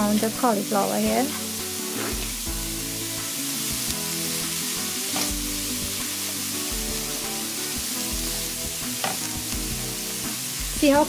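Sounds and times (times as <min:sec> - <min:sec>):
cauliflower sizzling in a wok: 0:00.0 - 0:11.0
spatula scraping a wok: 0:01.2 - 0:02.5.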